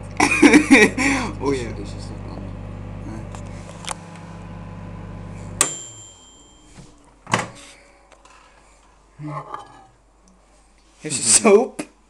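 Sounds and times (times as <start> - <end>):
microwave oven humming: 0.0 - 8.1
microwave beep: 4.8 - 7.0.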